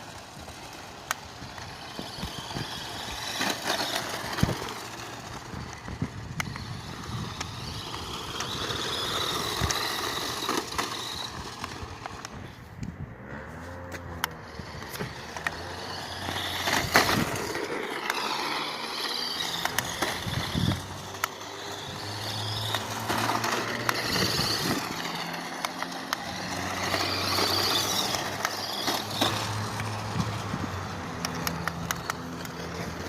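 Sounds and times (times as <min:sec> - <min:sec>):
electric motor whining: 0:00.0 - 0:33.0
rolling tyre noise: 0:00.0 - 0:33.0
clicks: 0:13.9 - 0:21.8, 0:31.1 - 0:32.9.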